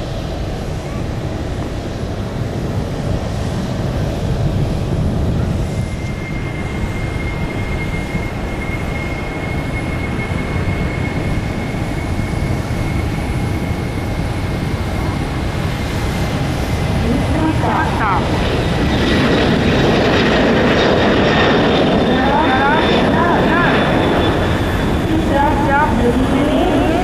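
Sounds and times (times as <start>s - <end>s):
jet engines roaring: 0.0s - 27.0s
thin whine: 17.0s - 27.0s.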